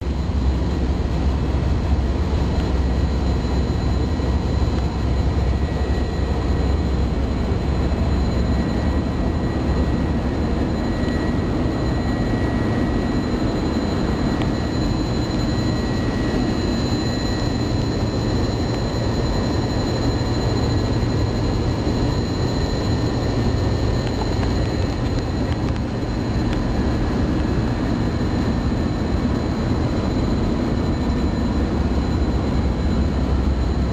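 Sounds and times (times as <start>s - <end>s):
airliner engine and airflow roar: 0.0s - 33.9s
faint high-pitched whines: 0.1s - 33.9s.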